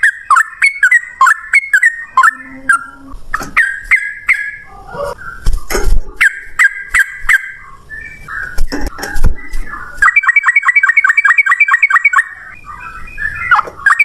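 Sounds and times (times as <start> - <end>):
bulbul singing rapid notes: 6.1 - 14.0.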